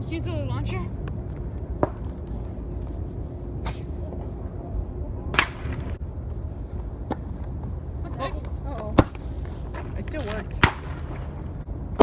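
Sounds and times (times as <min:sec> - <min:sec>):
firework hissing bursts: 0:03.6 - 0:04.0
firework snap: 0:03.6 - 0:04.0.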